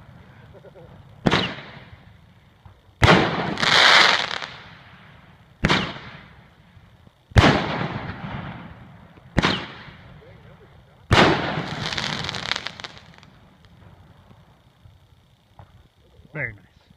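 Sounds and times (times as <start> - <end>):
noisy firework burst: 0.0 - 16.0
firework bangs: 1.1 - 6.4, 7.3 - 10.2, 11.1 - 14.4.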